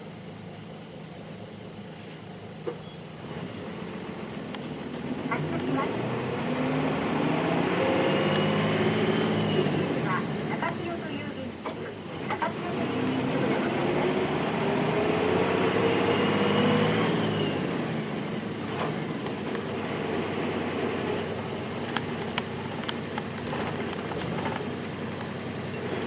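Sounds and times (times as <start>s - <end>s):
bus diesel engine accelerating: 0.0s - 26.0s.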